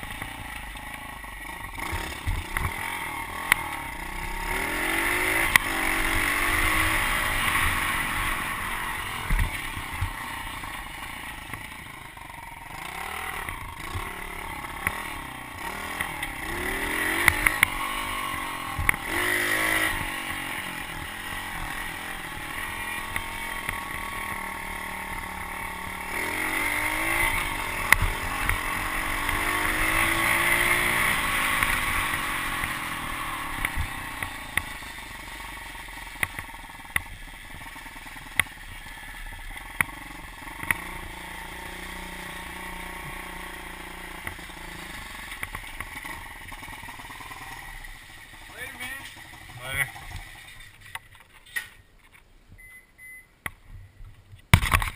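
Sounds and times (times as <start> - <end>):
motorbike engine revving: 0.0 - 50.9.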